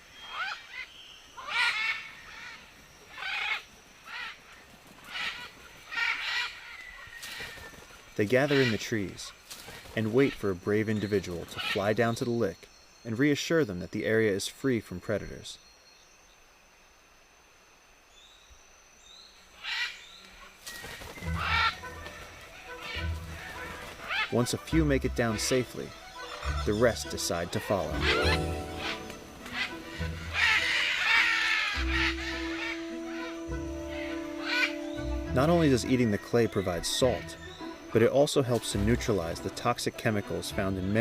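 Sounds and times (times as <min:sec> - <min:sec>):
macaws squawking: 0:00.2 - 0:10.4, 0:11.0 - 0:12.1, 0:20.9 - 0:41.0.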